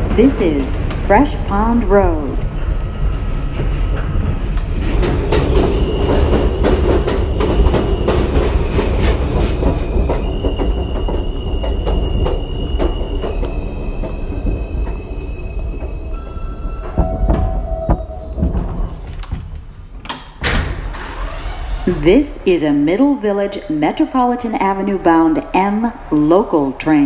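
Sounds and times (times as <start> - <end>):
subway train rumble: 0.0 - 27.0.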